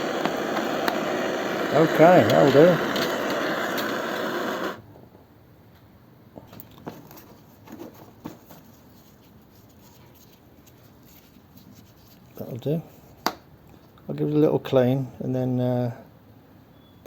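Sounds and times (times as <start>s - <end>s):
blowtorch flame hissing: 0.0s - 4.8s.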